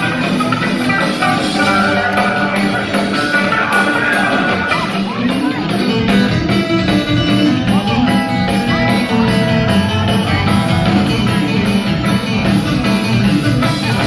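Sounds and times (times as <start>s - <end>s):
bass: 0.0s - 14.0s
drums: 0.0s - 14.0s
electric guitars: 0.0s - 14.0s
person singing: 0.8s - 5.7s.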